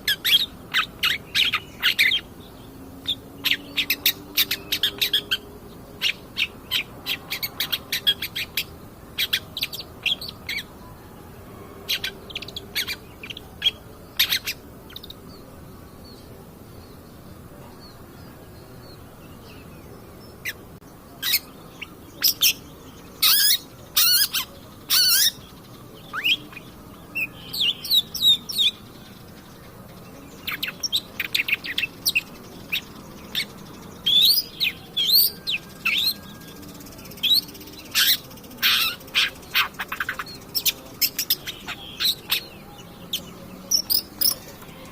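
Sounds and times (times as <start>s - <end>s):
bird singing high chirps: 0.0s - 44.9s.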